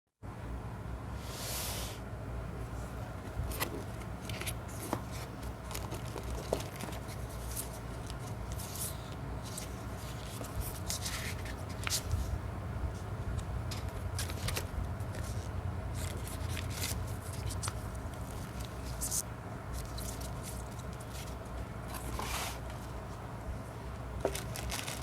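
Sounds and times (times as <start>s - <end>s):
steady low hum: 0.2s - 25.0s
packaging rustling: 3.3s - 12.3s, 13.7s - 23.0s, 24.2s - 25.0s.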